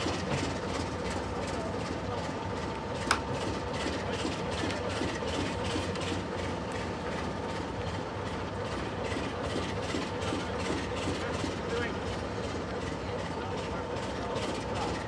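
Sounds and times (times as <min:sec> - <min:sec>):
railway coach rumbling: 0:00.0 - 0:15.0.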